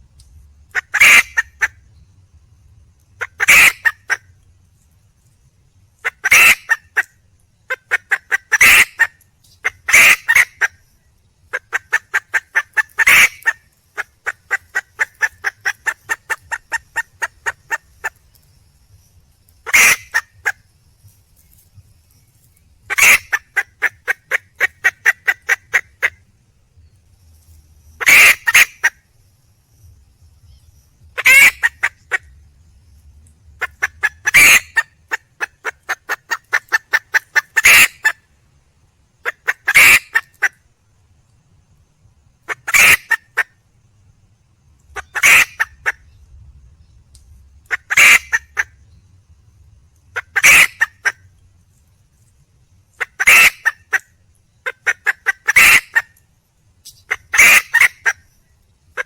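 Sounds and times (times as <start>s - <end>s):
hen clucking: 0.7s - 1.7s, 3.2s - 4.2s, 6.0s - 7.1s, 7.7s - 10.8s, 11.5s - 18.4s, 19.7s - 20.6s, 22.8s - 26.2s, 28.0s - 29.0s, 31.2s - 32.4s, 33.6s - 38.2s, 39.2s - 40.5s, 42.5s - 43.5s, 44.9s - 46.1s, 47.7s - 48.7s, 50.2s - 51.2s, 53.0s - 56.2s, 57.0s - 58.2s
hen squawking calls: 0.8s - 1.8s, 3.2s - 4.2s, 6.0s - 7.1s, 7.7s - 10.8s, 11.5s - 18.2s, 19.6s - 20.6s, 22.9s - 26.2s, 28.0s - 29.0s, 31.2s - 32.3s, 33.6s - 38.2s, 39.2s - 40.6s, 42.5s - 43.5s, 45.0s - 46.1s, 47.7s - 48.7s, 50.2s - 51.2s, 53.0s - 54.0s, 54.6s - 56.2s, 57.0s - 58.3s.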